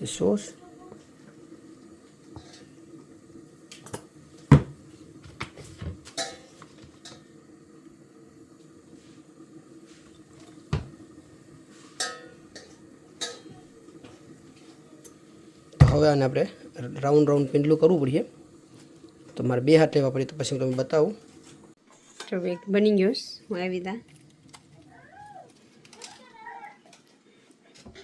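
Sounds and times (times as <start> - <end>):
kitchen utensils and dishes clinking: 2.3 - 2.8, 3.7 - 7.3, 11.7 - 16.3, 24.0 - 28.0.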